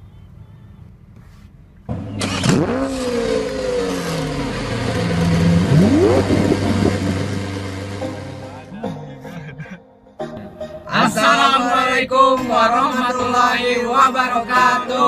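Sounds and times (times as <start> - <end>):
vehicle engine revving: 1.8 - 8.7.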